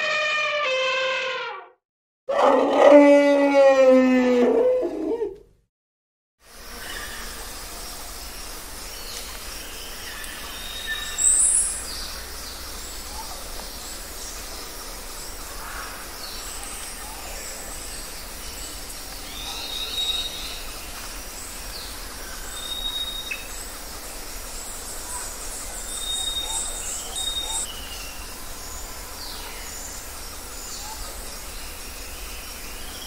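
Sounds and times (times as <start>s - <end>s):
birds chirping and whistling: 25.9s - 28.2s.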